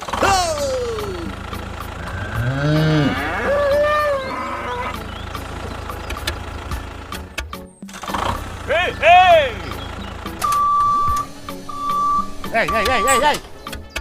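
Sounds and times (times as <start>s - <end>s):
cow mooing: 2.0s - 5.1s.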